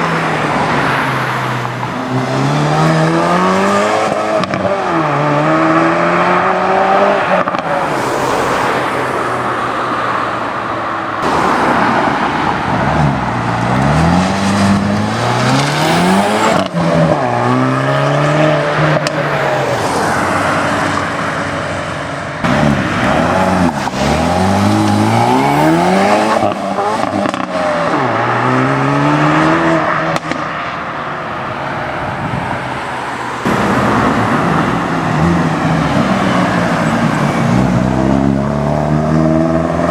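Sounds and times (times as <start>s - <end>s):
car engines accelerating hard: 0.0s - 39.9s.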